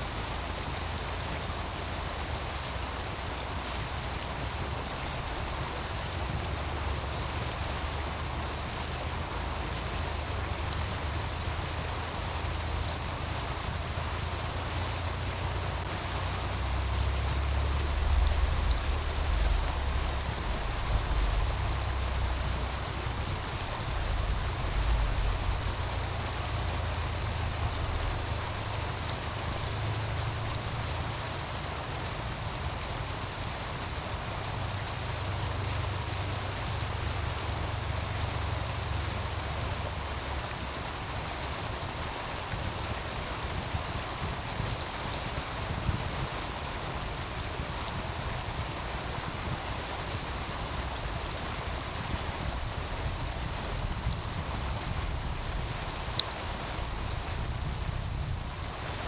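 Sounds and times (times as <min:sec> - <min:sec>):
stream rushing: 0:00.0 - 0:59.0
wind rumble on microphone: 0:00.0 - 0:59.0
wood fire crackling: 0:00.0 - 0:59.0.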